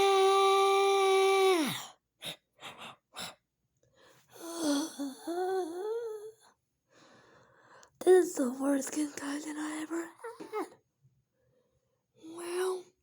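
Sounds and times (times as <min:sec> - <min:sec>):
person moaning: 0:00.0 - 0:01.8.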